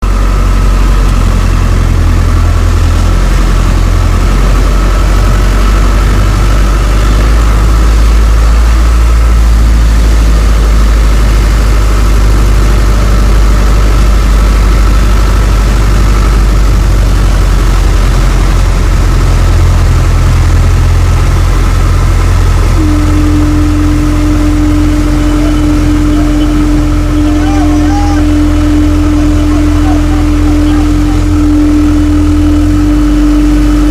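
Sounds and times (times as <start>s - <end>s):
motor engine running: 0.0s - 33.9s
steady hum: 0.0s - 33.9s.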